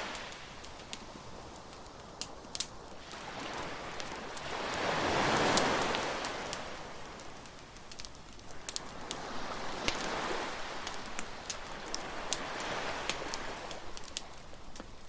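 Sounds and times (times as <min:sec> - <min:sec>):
surf washing: 0:00.0 - 0:01.4, 0:03.0 - 0:15.0
bonfire crackling and popping: 0:00.0 - 0:15.0.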